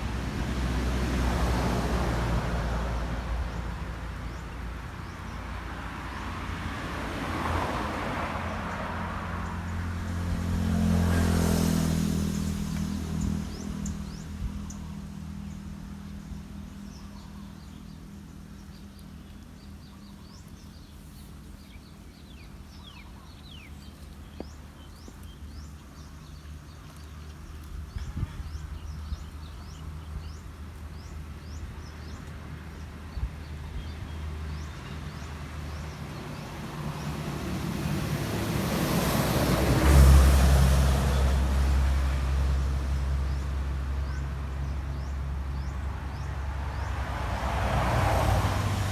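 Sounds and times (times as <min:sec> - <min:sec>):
low engine hum: 0:00.0 - 0:48.9
motor vehicle passing close: 0:06.2 - 0:15.8, 0:33.9 - 0:48.9.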